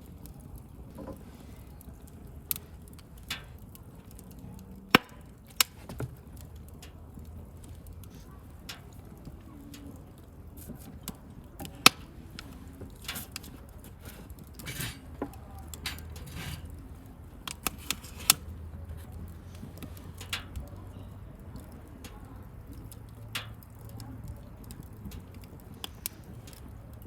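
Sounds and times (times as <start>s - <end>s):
bonfire crackling and popping: 0.0s - 27.0s.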